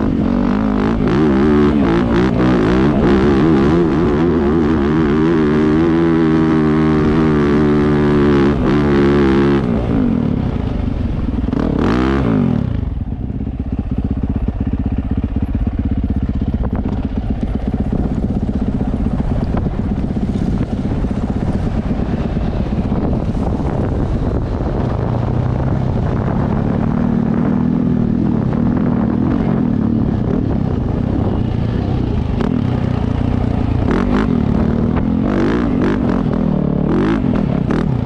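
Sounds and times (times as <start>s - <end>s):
dirt bike engine revving: 0.0s - 13.1s, 26.0s - 38.0s
dirt bike engine idling: 12.8s - 27.1s, 27.7s - 37.4s.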